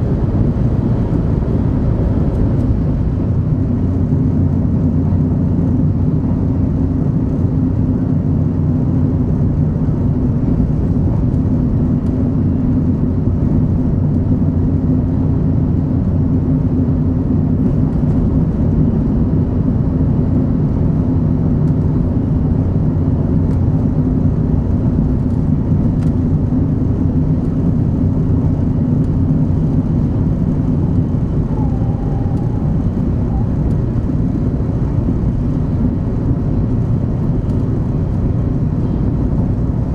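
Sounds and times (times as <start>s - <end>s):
train wheels rumbling at speed: 0.0s - 39.9s.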